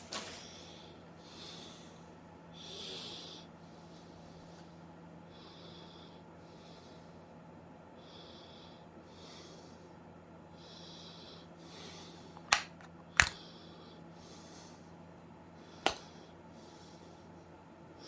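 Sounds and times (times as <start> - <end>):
steady low hum: 0.0 - 18.0
soft breathing through nose: 0.3 - 12.4, 13.4 - 18.0
sharp clicks: 12.4 - 13.4.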